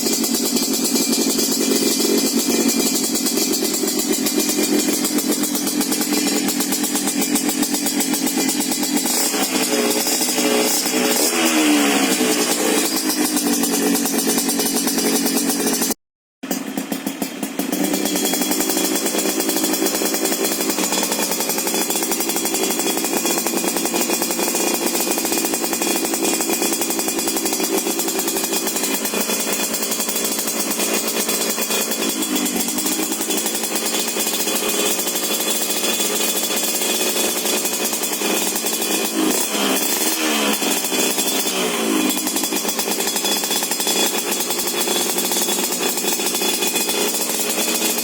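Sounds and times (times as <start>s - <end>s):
two-stroke motorcycle idling: 0.0s - 48.0s.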